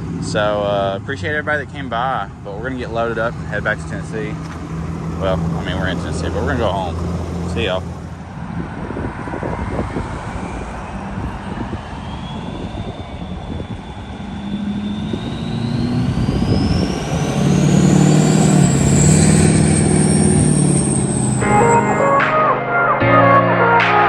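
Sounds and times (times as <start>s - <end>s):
deep steady hum: 1.2s - 8.4s
high whine rising in pitch: 10.2s - 22.2s.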